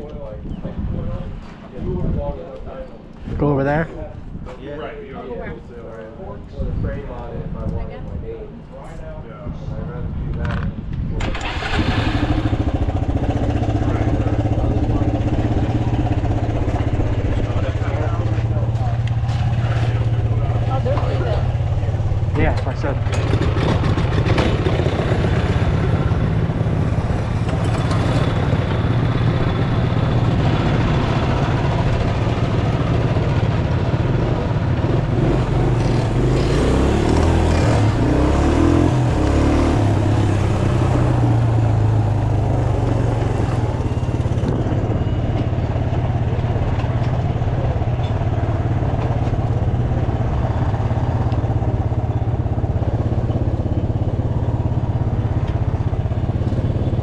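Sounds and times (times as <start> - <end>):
mini bike engines running: 11.2 - 39.2.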